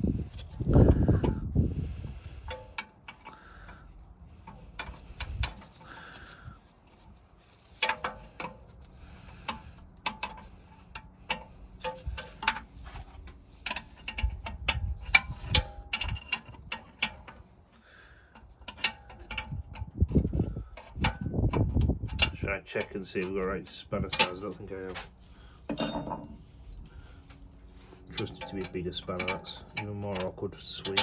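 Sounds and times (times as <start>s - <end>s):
metal tools clinking: 4.5s - 17.4s, 22.2s - 31.0s.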